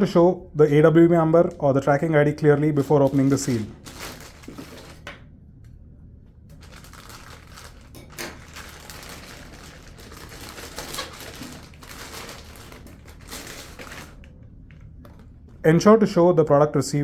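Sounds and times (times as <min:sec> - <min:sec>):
package wrapping crinkling: 0:02.8 - 0:05.1, 0:06.5 - 0:15.6.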